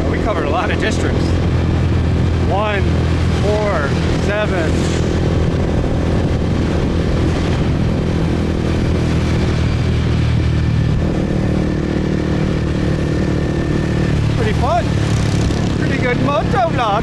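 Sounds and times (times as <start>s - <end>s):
motorbike engine running: 0.0s - 17.0s.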